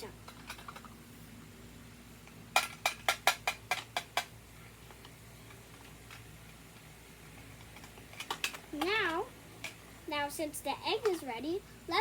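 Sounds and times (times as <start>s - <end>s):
plastic toy pieces clicking: 7.6s - 9.1s.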